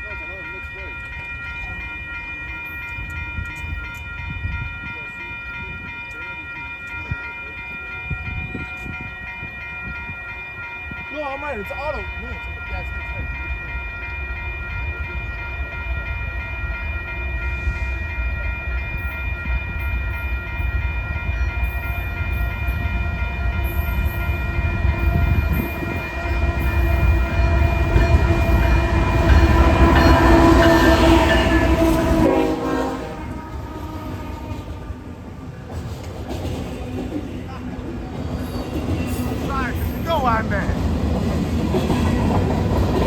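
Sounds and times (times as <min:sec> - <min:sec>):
train rumbling: 0:00.0 - 0:43.0
locomotive air horn blast: 0:26.3 - 0:35.2.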